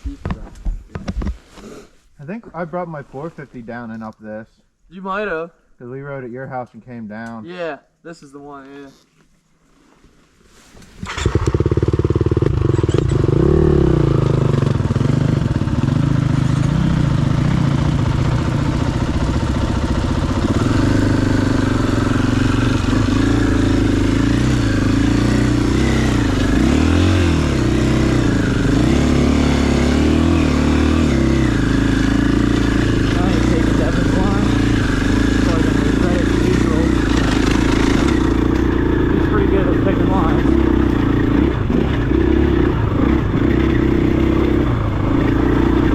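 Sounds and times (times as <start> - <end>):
dirt bike engine revving: 10.9 - 45.9.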